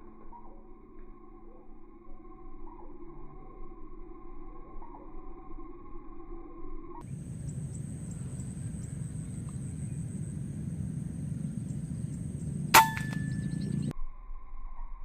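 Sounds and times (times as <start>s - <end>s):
low outdoor rumble: 7.0s - 14.3s
air rifle shot: 12.6s - 13.9s.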